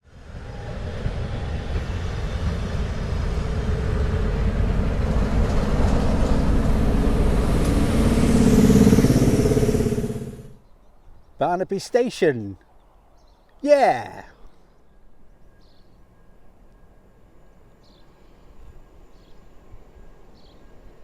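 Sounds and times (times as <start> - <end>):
train rumbling past: 0.2 - 10.4.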